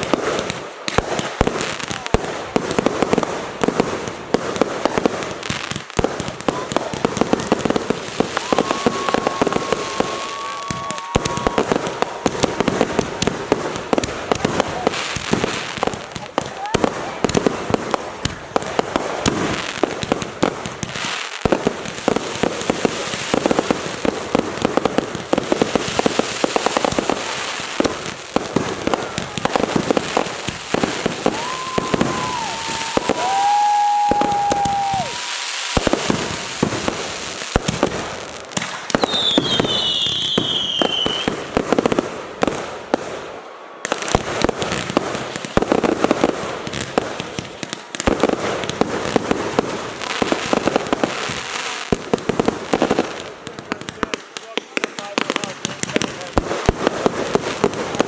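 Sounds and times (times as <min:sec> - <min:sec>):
fireworks crackling bangs and pops: 0:00.0 - 0:58.0
falling firework whistle: 0:08.2 - 0:12.7, 0:30.8 - 0:36.8, 0:38.6 - 0:41.4
firework whistles: 0:08.2 - 0:12.9, 0:30.7 - 0:36.9, 0:38.6 - 0:41.4.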